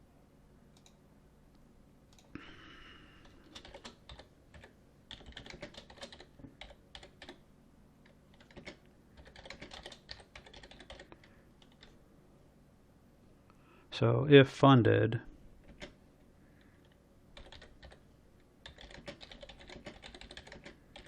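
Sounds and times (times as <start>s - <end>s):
typing on computer keyboard: 3.2s - 7.4s, 8.0s - 11.9s, 15.6s - 16.0s, 17.4s - 18.0s, 18.6s - 21.0s.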